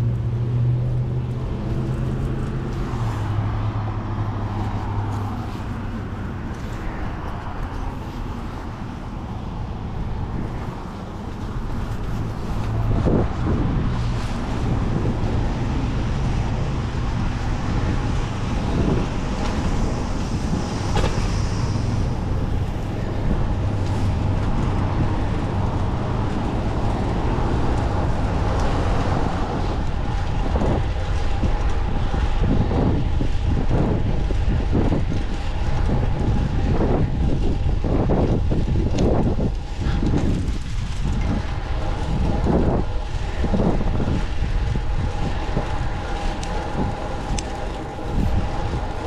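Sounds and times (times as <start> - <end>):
bicycle road noise: 0.0 - 49.0
rushing wind: 0.0 - 49.0.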